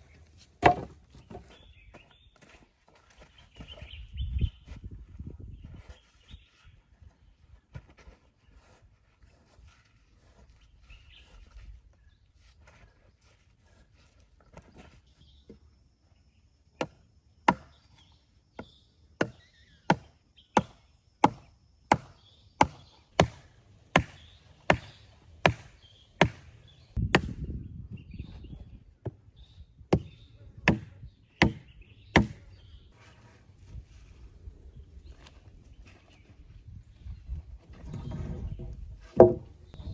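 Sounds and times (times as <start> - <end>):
axe chopping wood: 0.6 - 1.4, 16.8 - 17.8, 18.6 - 27.6, 29.9 - 32.4, 39.1 - 39.5.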